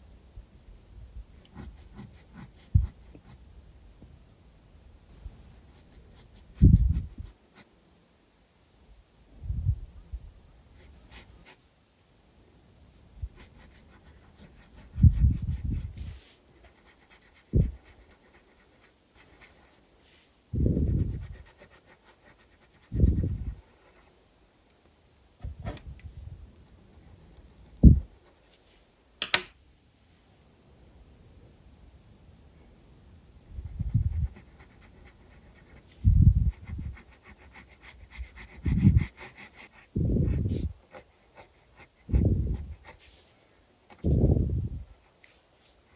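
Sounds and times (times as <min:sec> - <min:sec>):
pencil scratching on paper: 0:01.4 - 0:03.4, 0:05.5 - 0:07.7, 0:10.8 - 0:11.7, 0:12.9 - 0:24.1, 0:33.6 - 0:35.9, 0:36.5 - 0:43.2, 0:43.9 - 0:45.9.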